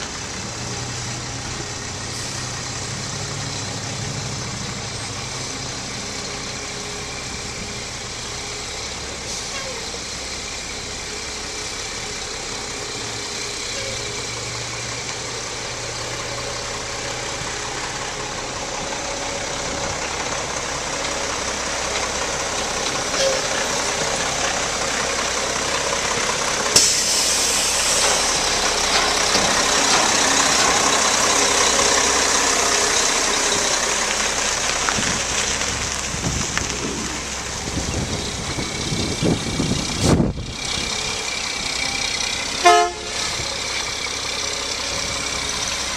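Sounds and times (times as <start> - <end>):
truck diesel engine running: 0.0 - 45.9
loud hiss: 26.7 - 28.8.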